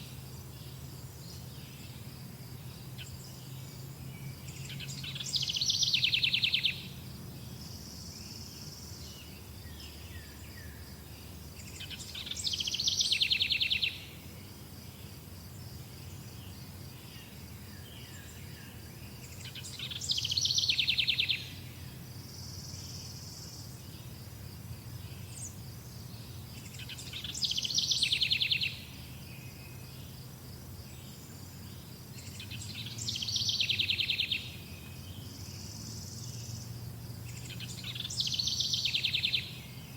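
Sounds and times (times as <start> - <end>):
songbird trilling: 4.5 - 6.9, 11.7 - 14.1, 26.6 - 28.9, 32.2 - 34.6, 37.3 - 39.7.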